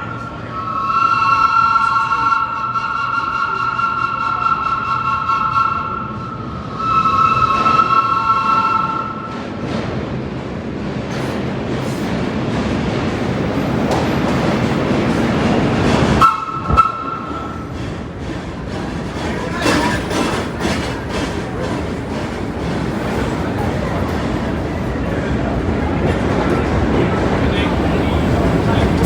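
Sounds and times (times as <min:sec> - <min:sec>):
train rumbling: 0:00.0 - 0:29.0
train horn: 0:00.3 - 0:09.3, 0:16.2 - 0:17.6.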